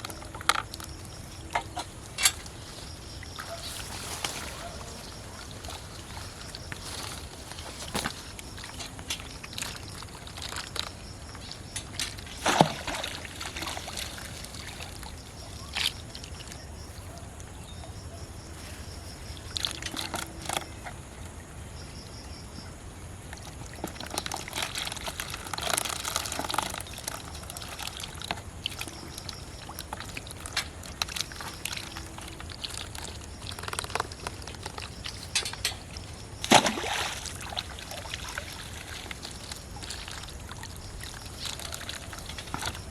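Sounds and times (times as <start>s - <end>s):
shallow water sloshing: 0.0s - 22.1s, 23.2s - 42.9s
loud water splashes: 36.4s - 42.9s.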